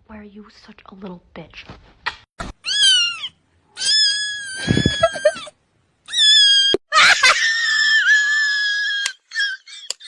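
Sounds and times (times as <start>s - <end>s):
cat screaming: 2.6s - 5.4s.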